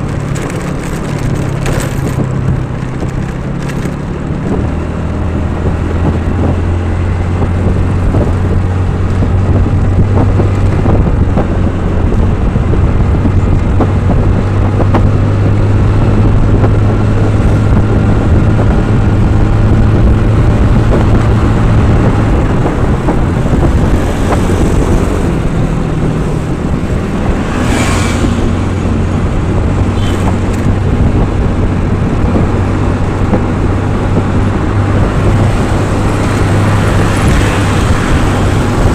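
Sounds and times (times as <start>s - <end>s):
traffic noise: 0.0s - 38.9s
vehicle engine running: 0.0s - 38.9s
short rushing sound: 23.6s - 30.7s.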